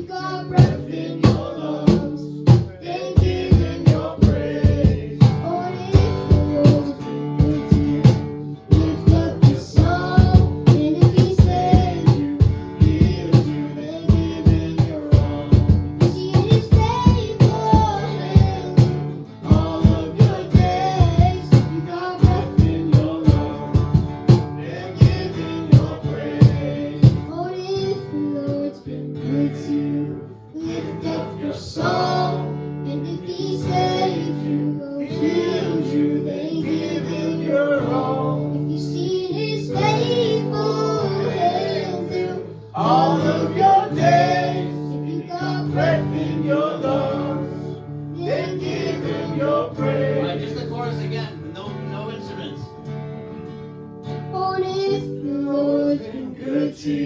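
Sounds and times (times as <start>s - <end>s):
live worship band playing: 0.0s - 53.2s
drum kit steady beat: 0.6s - 27.3s.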